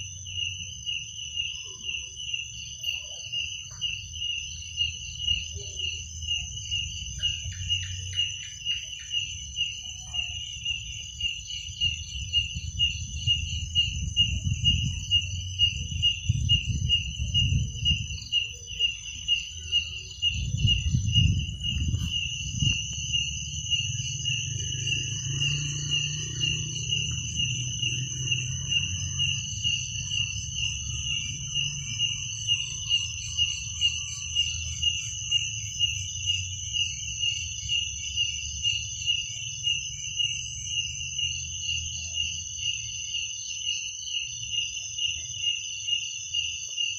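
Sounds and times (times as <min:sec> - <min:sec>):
continuous high trill: 0:00.0 - 0:41.2
crickets chirping: 0:00.0 - 0:46.9
low rumble: 0:20.1 - 0:32.6.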